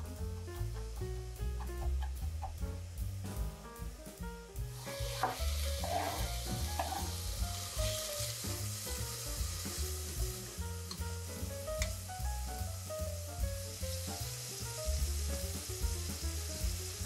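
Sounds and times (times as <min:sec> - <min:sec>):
background music: 0:00.0 - 0:17.0
celery sizzling in oil: 0:00.0 - 0:17.0
spatula scraping pot: 0:04.9 - 0:07.2.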